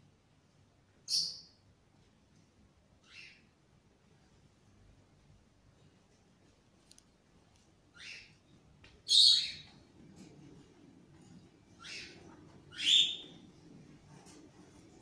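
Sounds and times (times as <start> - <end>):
bird chirping: 1.0 - 1.6, 3.0 - 3.5, 7.9 - 9.8, 11.7 - 13.5.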